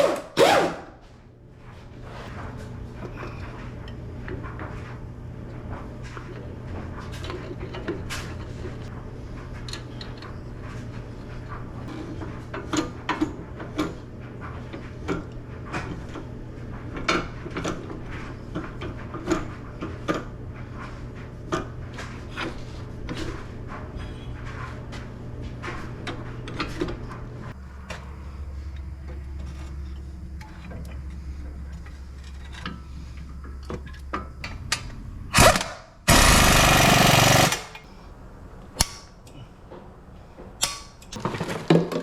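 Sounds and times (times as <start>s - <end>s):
steady low hum: 27.0s - 41.2s.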